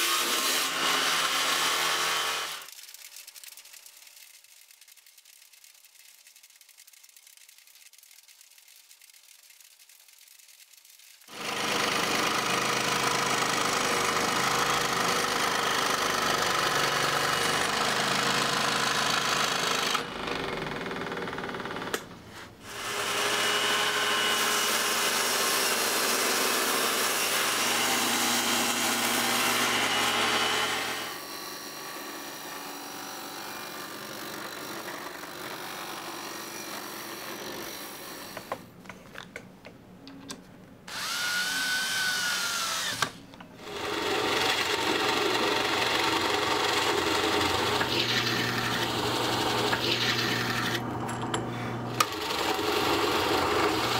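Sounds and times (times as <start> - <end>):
electric power tool running: 11.3 - 22.1, 22.7 - 38.5, 40.9 - 53.9.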